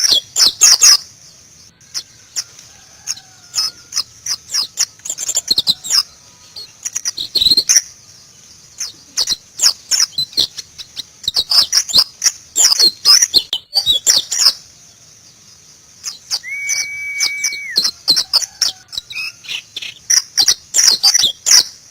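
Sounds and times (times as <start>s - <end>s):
bird chirping song: 0.0s - 21.9s
steady whistled note: 16.3s - 17.9s.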